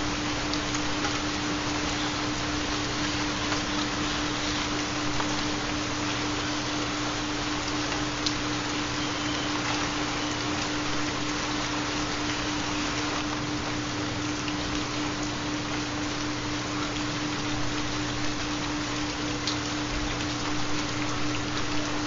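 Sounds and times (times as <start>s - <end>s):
constant low hum tone: 0.0s - 22.0s
steady rain falling: 0.0s - 22.0s
faint raindrop ticks: 0.3s - 2.0s, 4.6s - 6.2s, 7.6s - 13.5s, 14.3s - 22.0s.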